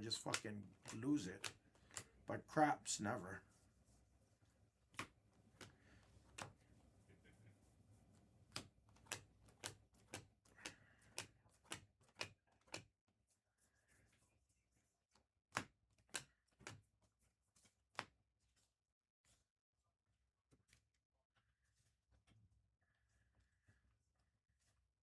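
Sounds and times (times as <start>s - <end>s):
trading cards clicking and snapping: 0.0s - 3.2s, 4.9s - 6.7s, 8.4s - 12.9s, 15.6s - 16.8s.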